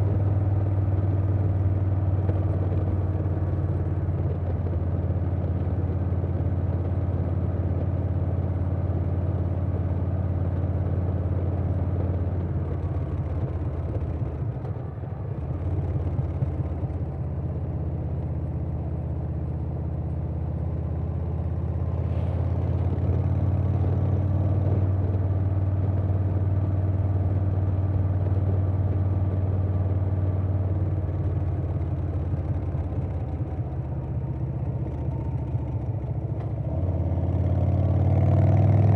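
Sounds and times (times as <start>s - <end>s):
motorcycle engine at road speed: 0.0s - 38.9s.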